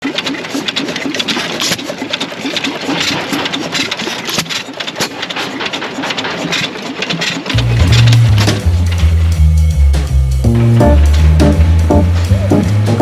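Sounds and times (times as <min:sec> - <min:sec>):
engine running with clatter: 0:07.4 - 0:13.0.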